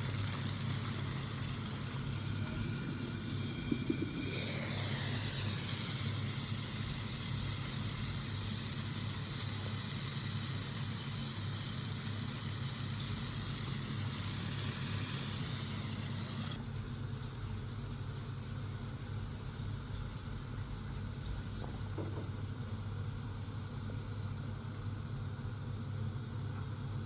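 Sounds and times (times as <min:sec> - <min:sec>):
steady hiss: 0:00.0 - 0:16.6
low even hum: 0:00.0 - 0:16.7.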